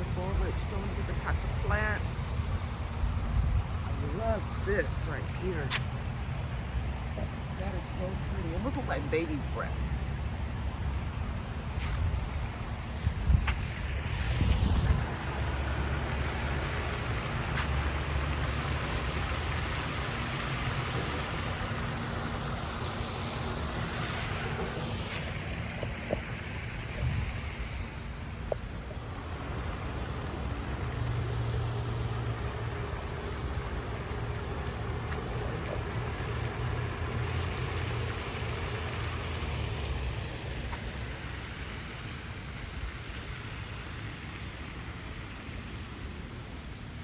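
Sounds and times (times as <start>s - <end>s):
road traffic rumble: 0.0s - 47.0s
wind buffeting microphone: 12.0s - 15.5s.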